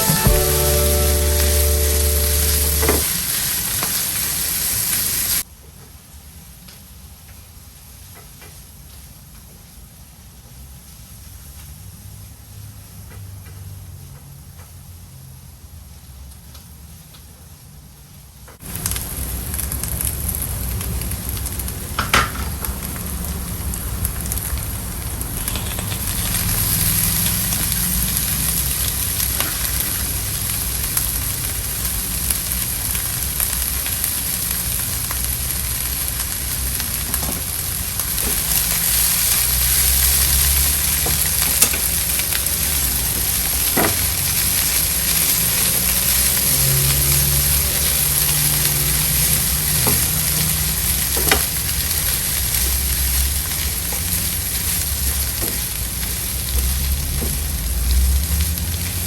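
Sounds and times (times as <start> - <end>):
noodles sizzling in a pan: 0.0 - 5.5, 18.6 - 59.0.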